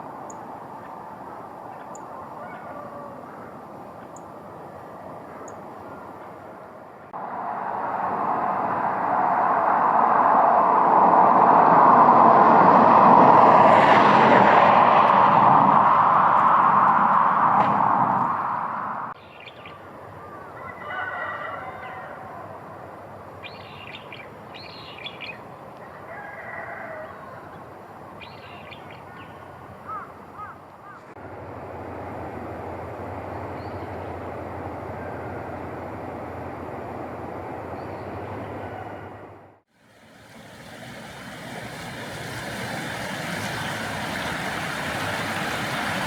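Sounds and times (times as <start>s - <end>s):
steady rushing noise: 6.8s - 19.2s, 39.8s - 46.0s
birds calling: 28.2s - 31.1s.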